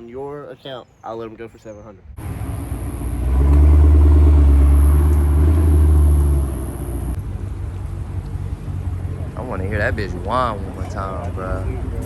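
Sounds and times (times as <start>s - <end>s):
engine revving with loud exhaust: 2.2s - 7.2s.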